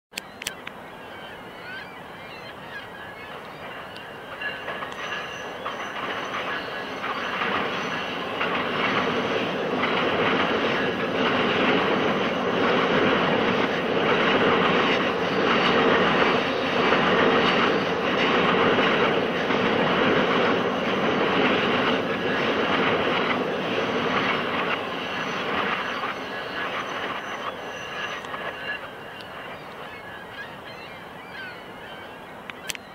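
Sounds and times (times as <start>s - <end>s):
train wheels rumbling: 2.3s - 31.9s
high wheel squeal: 3.0s - 9.4s.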